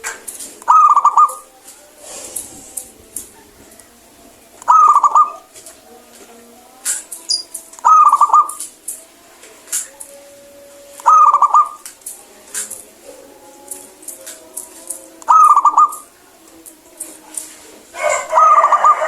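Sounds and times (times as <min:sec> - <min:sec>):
dove rolling coos: 0:00.6 - 0:01.5, 0:04.6 - 0:05.6, 0:07.8 - 0:08.6, 0:10.9 - 0:11.9, 0:15.2 - 0:16.2, 0:17.9 - 0:19.0.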